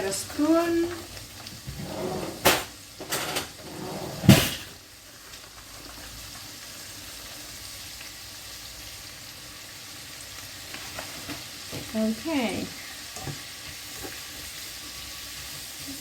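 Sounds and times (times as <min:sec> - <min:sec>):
vegetables sizzling in oil: 0:00.0 - 0:03.7, 0:04.4 - 0:16.0
kitchen utensils clattering: 0:01.7 - 0:04.8.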